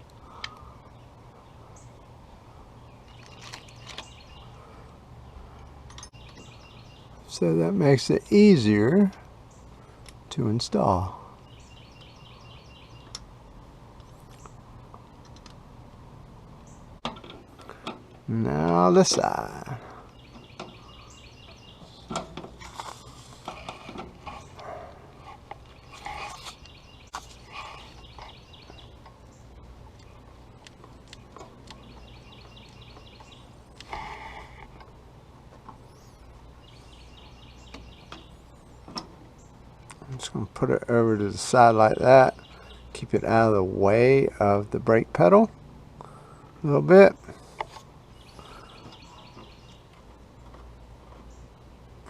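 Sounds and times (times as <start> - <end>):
low background hiss: 0.0 - 52.0
low steady hum: 0.0 - 52.0
bird chirping: 0.2 - 13.3, 17.6 - 34.9, 35.7 - 43.5, 47.1 - 51.9.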